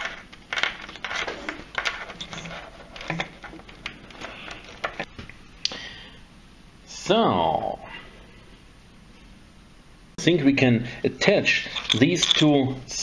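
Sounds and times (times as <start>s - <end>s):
packaging rustling: 0.0s - 5.1s.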